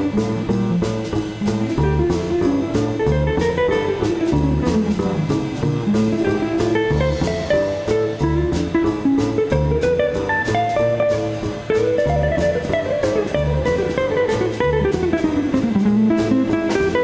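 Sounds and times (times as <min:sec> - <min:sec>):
drum kit with cymbals: 0:00.0 - 0:17.0
guitar: 0:00.0 - 0:17.0
walking bass line: 0:00.0 - 0:17.0.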